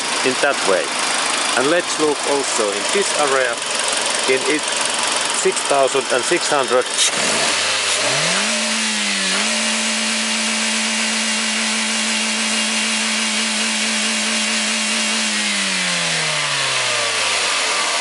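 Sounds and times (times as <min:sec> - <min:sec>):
car engine revving to limiter: 0:06.8 - 0:18.0.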